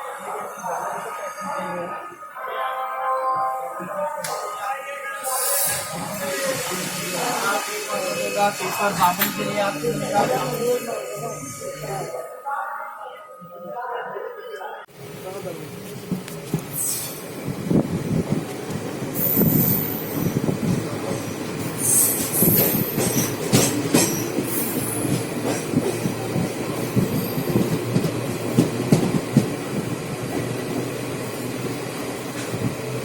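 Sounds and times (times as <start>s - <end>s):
train rumbling on rails: 14.9s - 33.0s.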